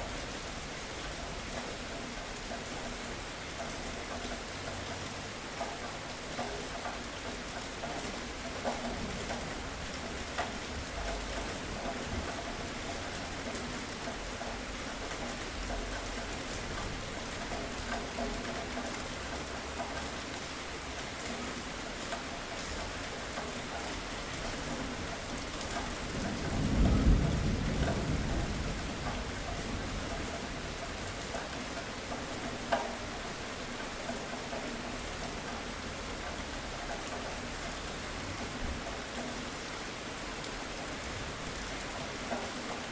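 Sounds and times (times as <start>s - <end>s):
heavy rain falling: 0.0s - 42.9s
thunder rumbling: 26.0s - 30.3s.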